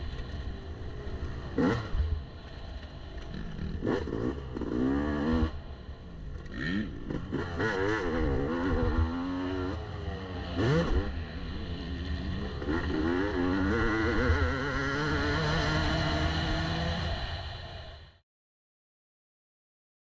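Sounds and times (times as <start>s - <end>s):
motorcycle engine revving: 0.2s - 2.2s, 3.2s - 5.6s, 6.3s - 17.5s.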